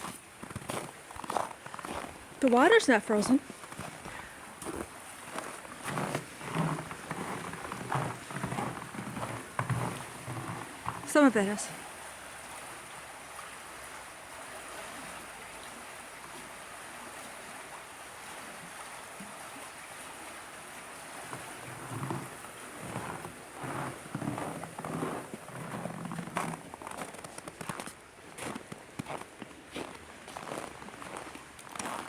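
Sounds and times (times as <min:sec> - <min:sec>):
footsteps in snow: 0:00.0 - 0:02.2, 0:03.5 - 0:11.2, 0:21.7 - 0:32.0
running water rushing: 0:00.0 - 0:32.0.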